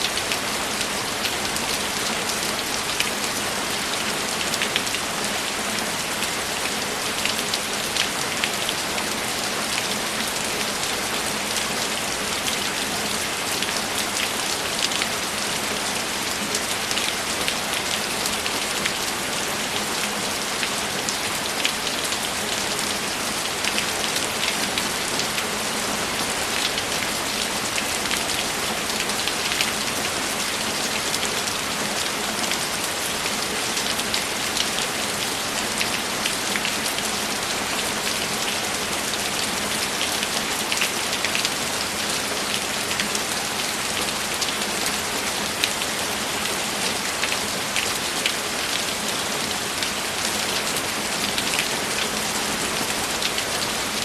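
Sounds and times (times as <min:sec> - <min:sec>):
rain pattering on a surface: 0:00.0 - 0:54.0.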